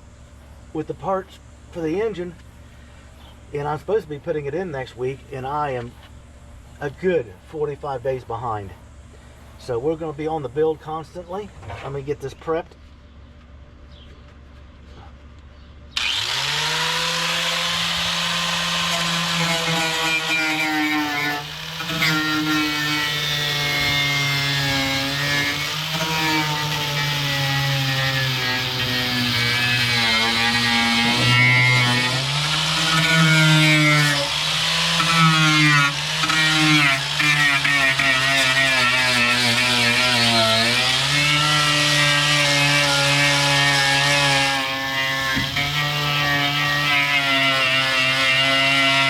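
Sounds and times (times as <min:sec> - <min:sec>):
electric power tool running: 0:16.0 - 0:49.0.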